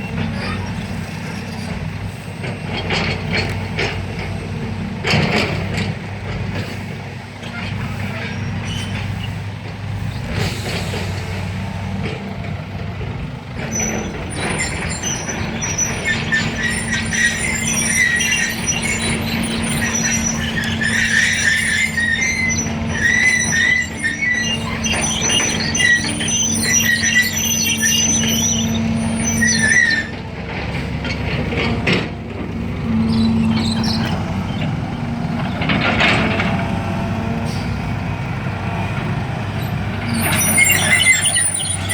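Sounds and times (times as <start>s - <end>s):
heavy diesel machinery running: 0.0s - 41.9s
high-pitched wavering squealing: 13.8s - 30.1s, 40.0s - 41.9s.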